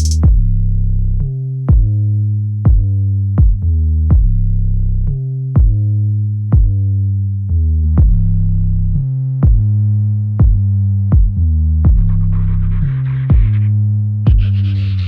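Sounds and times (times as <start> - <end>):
drum machine beat: 0.0 - 0.4, 5.6 - 5.8, 9.4 - 9.7, 10.4 - 10.6, 11.2 - 12.1, 14.3 - 14.6
synthesizer bass notes: 0.0 - 0.7, 7.5 - 15.0.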